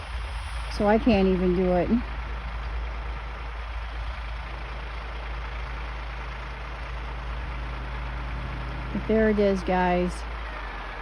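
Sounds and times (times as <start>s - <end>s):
wind buffeting microphone: 0.0s - 5.3s.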